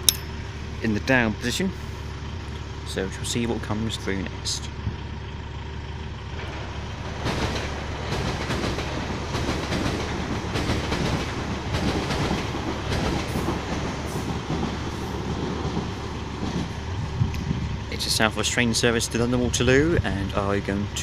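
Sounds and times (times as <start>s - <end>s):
wheels clicking over rail joints: 4.7s - 21.0s
train wheels rushing on rail: 6.1s - 21.0s.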